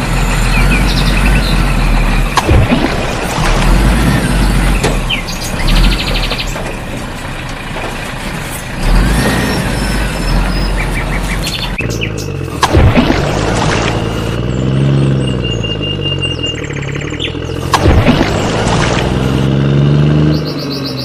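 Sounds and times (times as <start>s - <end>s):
heavy vehicle engine rumbling: 0.0s - 21.0s
birds chirping and trilling: 0.2s - 2.4s, 3.7s - 7.3s, 8.3s - 12.6s, 13.7s - 17.7s, 18.9s - 21.0s.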